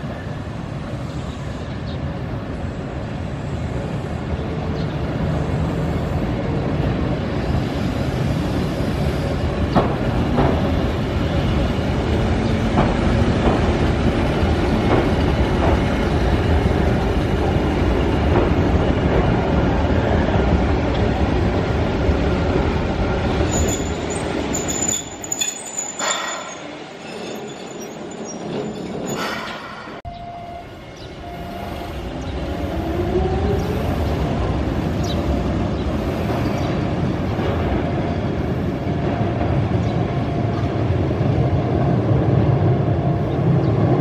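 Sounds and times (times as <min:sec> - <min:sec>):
electric train rumbling past: 0:00.0 - 0:44.0
wheel clacks over rail joints: 0:23.7 - 0:30.0.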